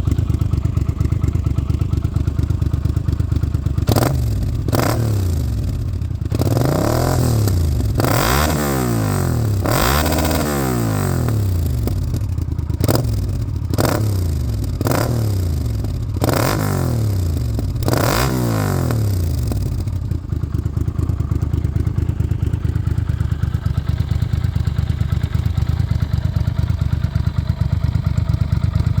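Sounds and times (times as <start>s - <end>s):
motorcycle engine revving and idling: 0.0s - 29.0s.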